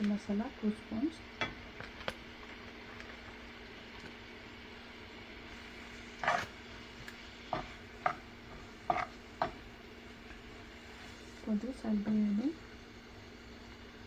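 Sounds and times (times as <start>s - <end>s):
steady low hum: 0.0s - 14.0s
utensil scraping a pan: 5.5s - 11.5s.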